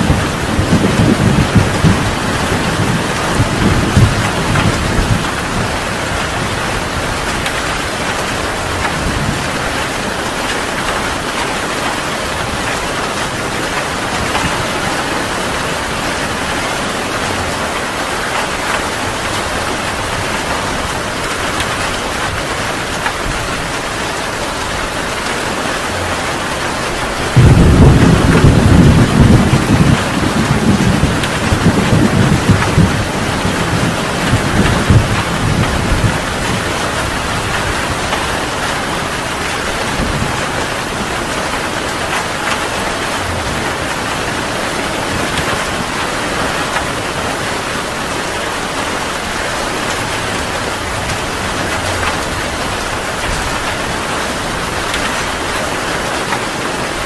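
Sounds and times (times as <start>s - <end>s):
heavy rain falling: 0.0s - 57.0s
thunder rumbling: 0.0s - 57.0s.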